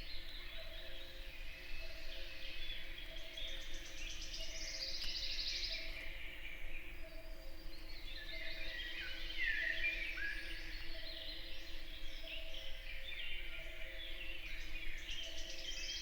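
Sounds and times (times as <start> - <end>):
songbirds singing: 0.0 - 16.0.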